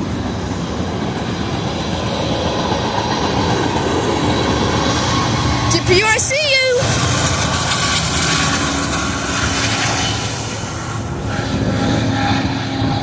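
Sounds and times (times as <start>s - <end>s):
freight train wheels on rails: 0.0s - 13.0s
droning hum: 4.8s - 13.0s.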